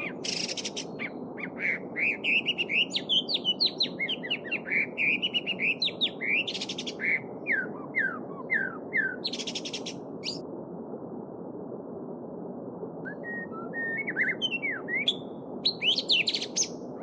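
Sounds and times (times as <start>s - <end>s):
songbird whistled notes: 13.1s - 16.7s.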